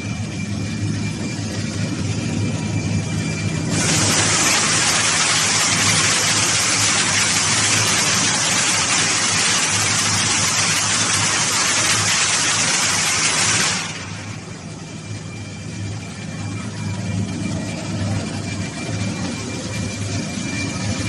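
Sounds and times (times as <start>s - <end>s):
low machinery hum: 0.0s - 21.0s
loud steady hiss: 3.7s - 14.5s.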